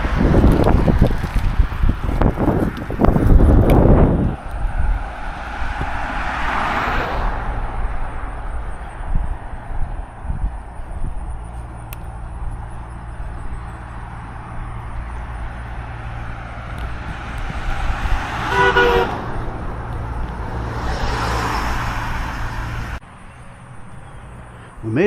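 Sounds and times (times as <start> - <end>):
vehicle passing: 0.0 - 25.0
wind and road rumble: 0.0 - 25.0
vehicle horn toot: 18.4 - 19.2.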